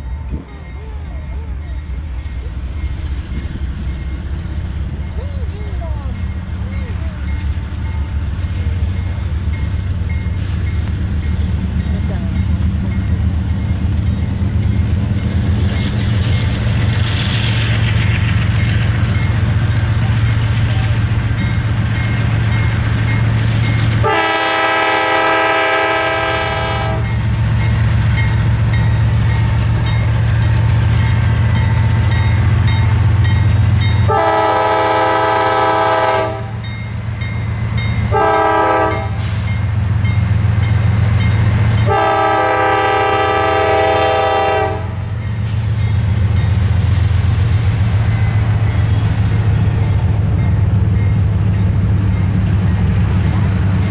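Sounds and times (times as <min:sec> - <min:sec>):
diesel locomotive engine running: 0:00.0 - 0:53.9
locomotive air horn blasts: 0:24.0 - 0:27.1, 0:34.0 - 0:36.6, 0:38.1 - 0:39.4, 0:41.8 - 0:45.0.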